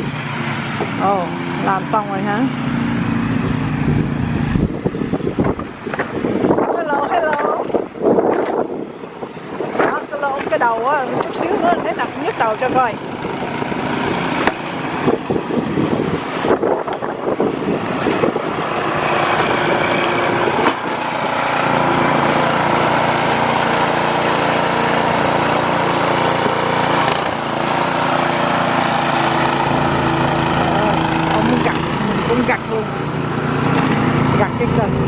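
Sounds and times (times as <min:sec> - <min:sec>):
snowblower engine running: 0:00.0 - 0:35.0.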